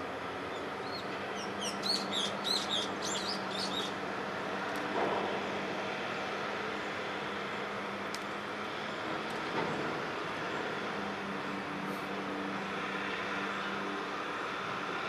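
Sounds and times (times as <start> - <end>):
small bird chirping: 0.8 - 3.9.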